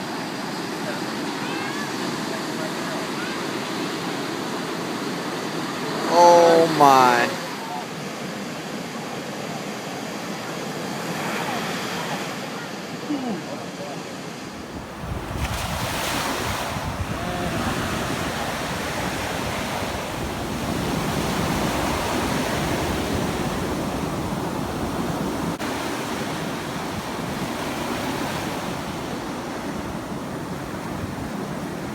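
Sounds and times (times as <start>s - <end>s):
ocean surf breaking: 5.6s - 7.6s, 14.3s - 31.9s
wind buffeting microphone: 14.5s - 31.9s.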